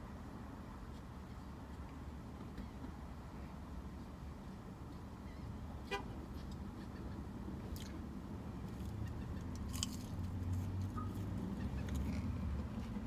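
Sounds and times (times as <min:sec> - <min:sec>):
person chewing: 0:09.6 - 0:11.2.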